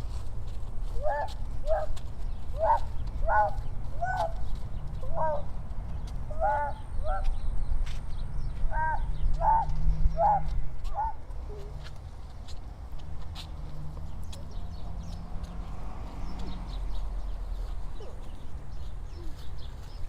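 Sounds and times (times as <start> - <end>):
animal calling: 1.0 - 5.5, 6.3 - 7.4, 8.7 - 11.8.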